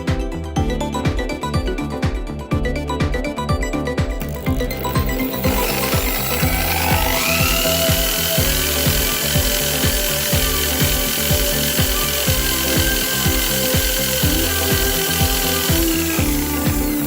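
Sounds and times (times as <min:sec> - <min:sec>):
background music with steady beat: 0:00.0 - 0:17.0
small electric motor whine: 0:04.8 - 0:17.0.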